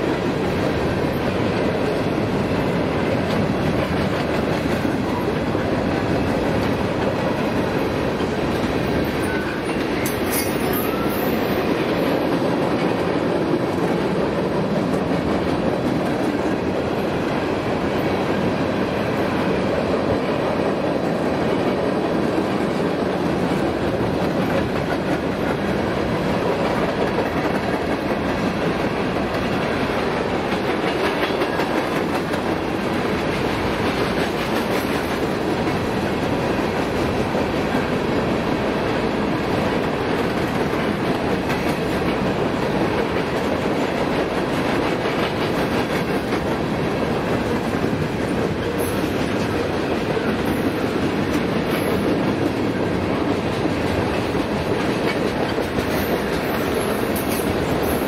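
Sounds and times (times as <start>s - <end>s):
freight train wheels on rails: 0.0s - 58.0s.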